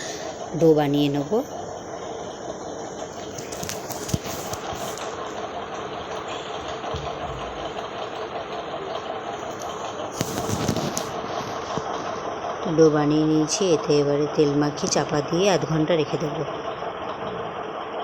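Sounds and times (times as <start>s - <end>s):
motor-like hum: 0.0s - 18.0s
dough being kneaded: 3.1s - 12.4s.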